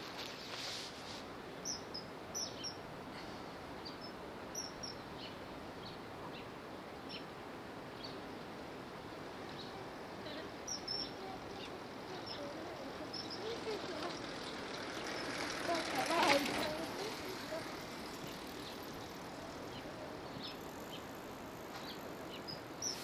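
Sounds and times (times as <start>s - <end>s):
background hiss: 0.0s - 23.0s
bird chirps: 3.8s - 6.5s, 10.6s - 15.4s, 21.7s - 23.0s.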